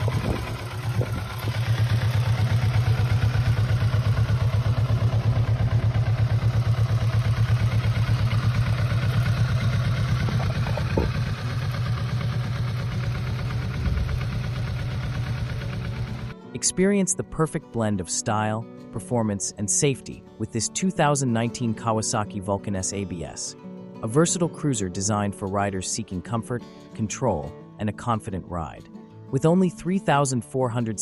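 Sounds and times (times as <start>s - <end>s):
motorcycle engine idling: 0.0s - 16.4s.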